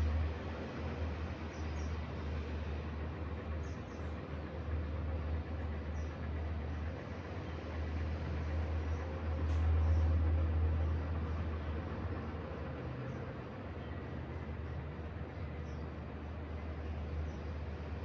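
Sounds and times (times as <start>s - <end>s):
continuous low rumble: 0.0s - 18.0s.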